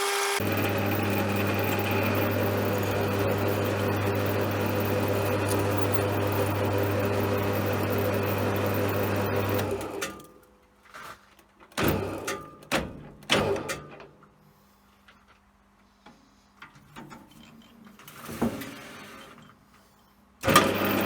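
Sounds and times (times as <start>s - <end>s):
lathe motor hum: 0.0s - 9.8s, 20.5s - 21.0s.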